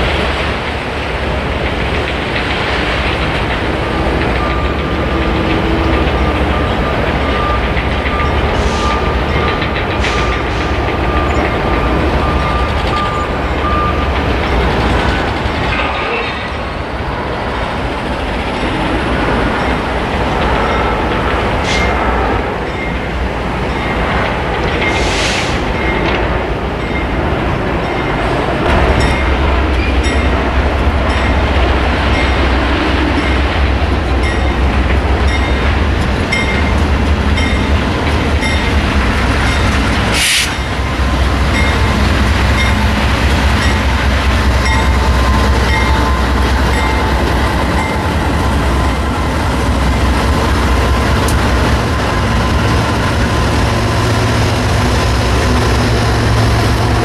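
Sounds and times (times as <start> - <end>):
train rumbling past: 0.0 - 57.0.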